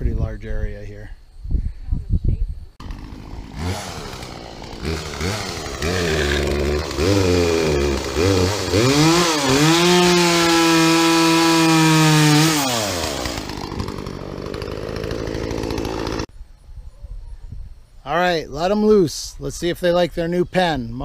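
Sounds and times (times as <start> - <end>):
chainsaw engine revving: 2.8 - 16.3.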